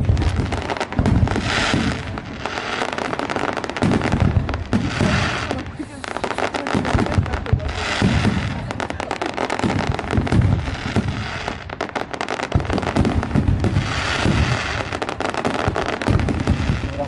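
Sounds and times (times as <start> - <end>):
deep fireworks booms: 0.0 - 17.0
fireworks cracking and banging: 0.0 - 17.0.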